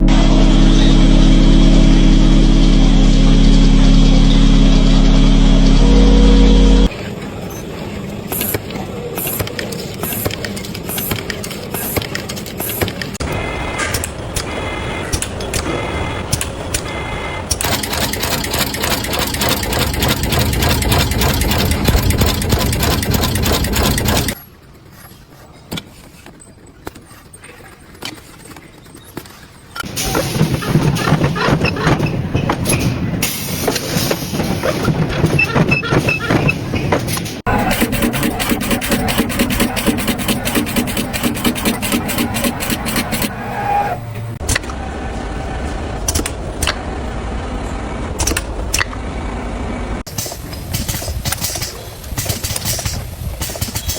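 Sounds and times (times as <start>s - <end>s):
machinery clattering: 7.7s - 24.5s, 28.2s - 44.6s.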